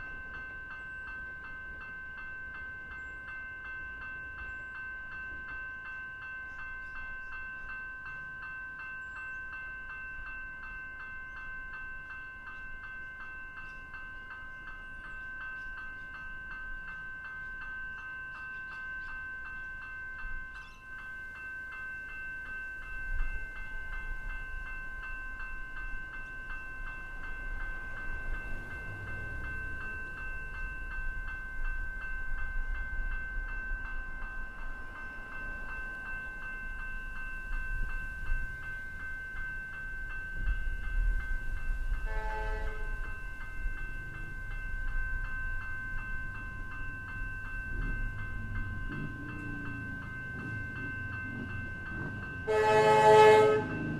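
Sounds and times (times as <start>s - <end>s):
level crossing warning bell ringing: 0.0s - 53.9s
train horn blast: 42.0s - 43.0s, 52.4s - 53.9s.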